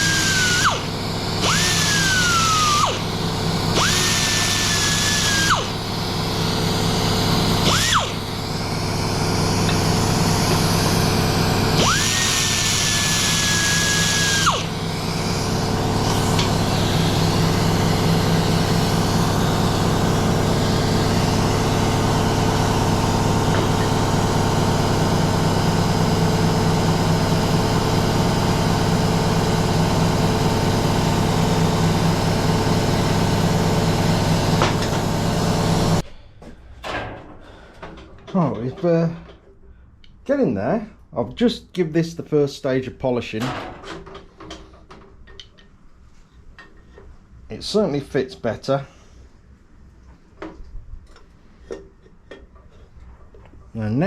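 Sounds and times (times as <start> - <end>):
power tool motor running: 0.0 - 36.0.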